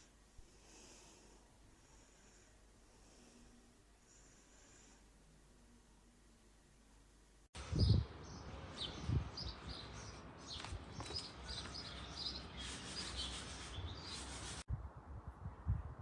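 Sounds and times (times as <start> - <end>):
faint background hiss: 0.0 - 7.5
small birds chirping: 7.7 - 14.6.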